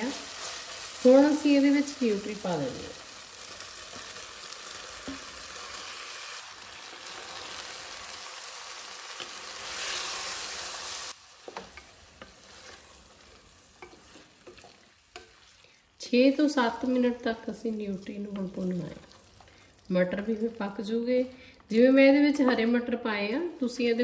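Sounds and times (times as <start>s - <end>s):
food sizzling in hot oil: 0.0s - 21.1s
wooden spatula scraping and tapping: 11.4s - 15.6s.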